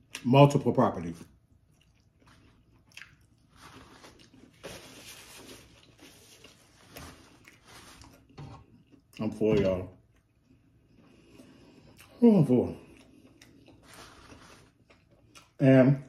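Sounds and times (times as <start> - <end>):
faint chewing: 1.2 - 4.9, 5.6 - 9.4, 10.0 - 15.6
paper napkin rustling: 3.5 - 8.3, 13.8 - 14.8.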